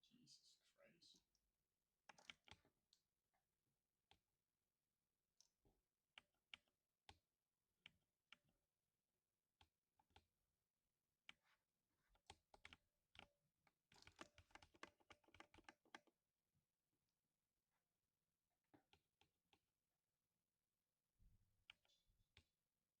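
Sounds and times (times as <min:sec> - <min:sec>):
faint keyboard keystrokes: 0:02.1 - 0:03.0, 0:13.9 - 0:16.1.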